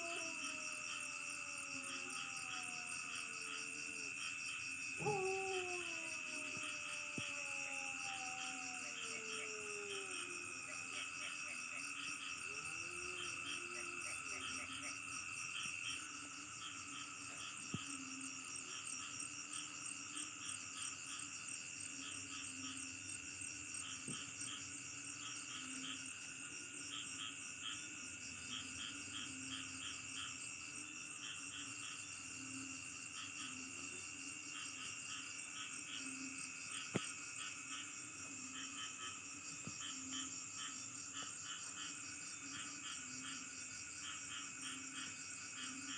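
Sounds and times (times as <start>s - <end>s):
crickets and insects trilling: 0.0s - 45.9s
frogs calling: 4.9s - 19.2s.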